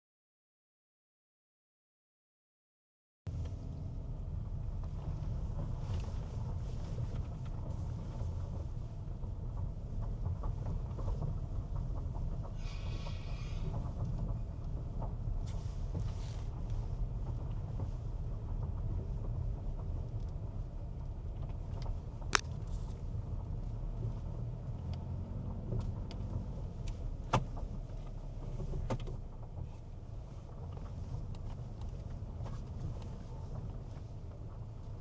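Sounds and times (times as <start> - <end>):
car road rumble: 3.3 - 12.6
sharp clicks: 22.4 - 23.3.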